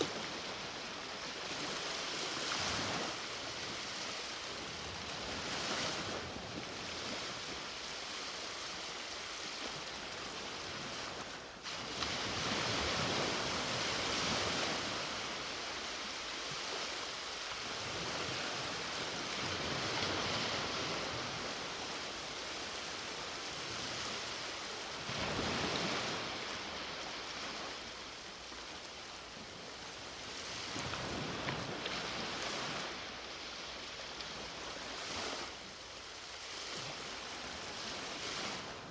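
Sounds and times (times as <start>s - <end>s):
sea waves washing onto beach: 0.0s - 38.9s.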